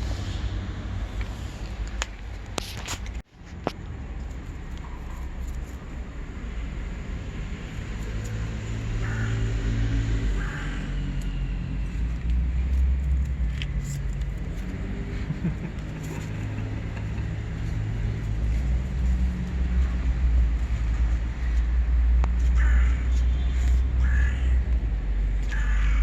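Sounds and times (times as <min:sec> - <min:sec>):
road traffic rumble: 0:00.0 - 0:26.0
crow cawing: 0:08.9 - 0:11.2, 0:22.4 - 0:23.4, 0:24.0 - 0:24.6, 0:25.4 - 0:26.0.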